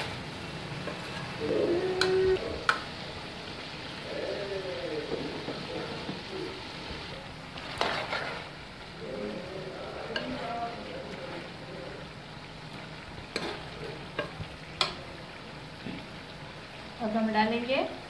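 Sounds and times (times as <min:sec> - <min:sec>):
food sizzling in oil: 0:00.0 - 0:18.0
ladle scraping and clinking on pot: 0:07.6 - 0:08.5, 0:13.3 - 0:15.0.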